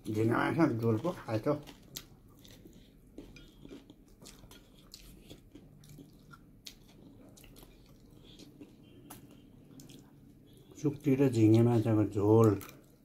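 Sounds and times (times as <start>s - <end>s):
person chewing: 0.0s - 13.0s.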